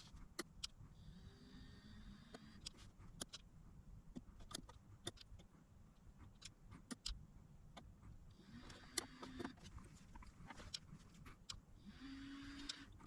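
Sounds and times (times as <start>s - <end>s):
faint hum and whine: 0.0s - 13.0s.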